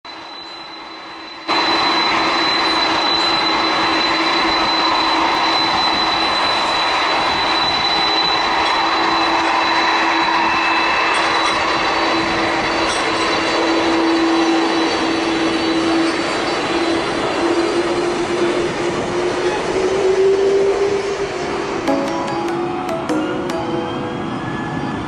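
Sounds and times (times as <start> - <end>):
airplane engines roaring: 0.2 - 21.8, 23.2 - 25.0.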